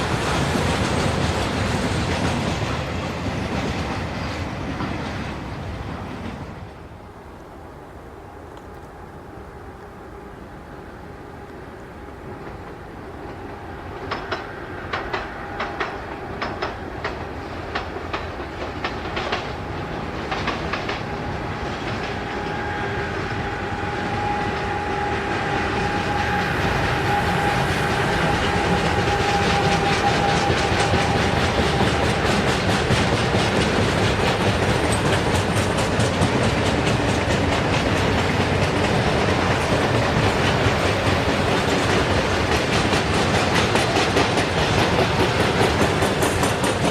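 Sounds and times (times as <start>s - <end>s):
train wheels on rails: 0.0s - 46.9s
wheels clicking over rail joints: 11.8s - 22.5s, 25.4s - 46.9s.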